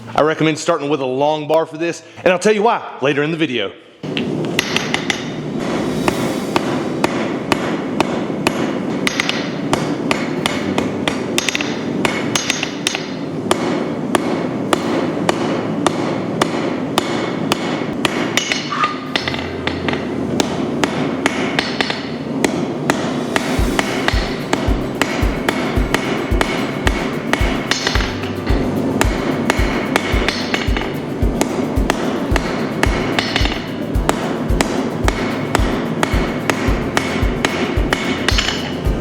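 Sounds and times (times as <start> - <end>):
hammer striking steel on anvil: 4.1 - 39.0
rushing background noise: 19.1 - 39.0.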